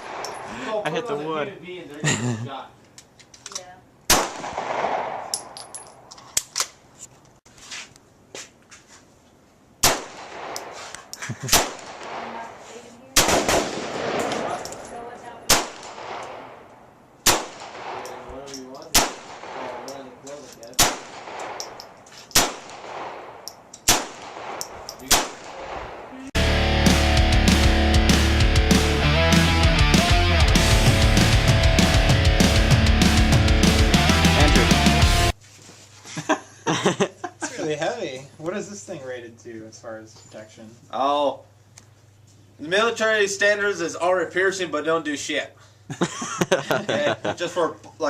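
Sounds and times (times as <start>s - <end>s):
gunshots with echo: 4.1s - 5.3s, 13.2s - 14.6s.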